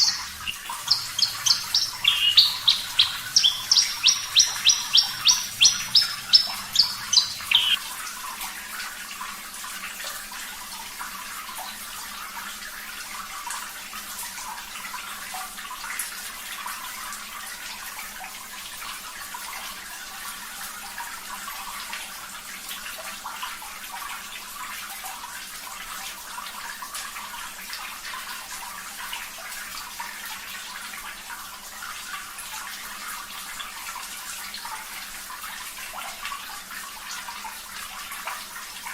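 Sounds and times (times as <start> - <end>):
bird repeated notes: 0.0 - 7.8
running water: 0.0 - 38.9.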